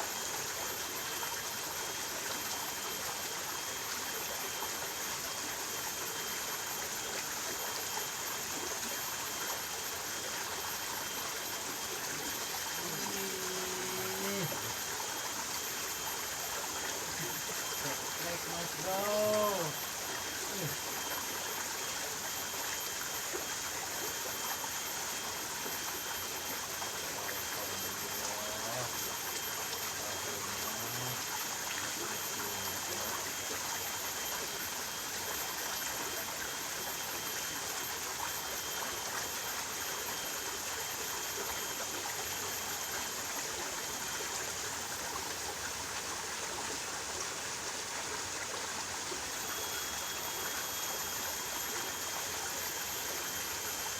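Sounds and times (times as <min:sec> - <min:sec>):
stream water rushing: 0:00.9 - 0:53.9
thin high-pitched tone: 0:12.0 - 0:14.9, 0:17.0 - 0:21.4.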